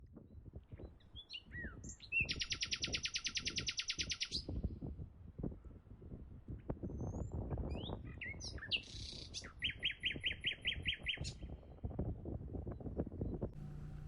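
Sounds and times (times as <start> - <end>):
faint low knocks: 13.6 - 14.0.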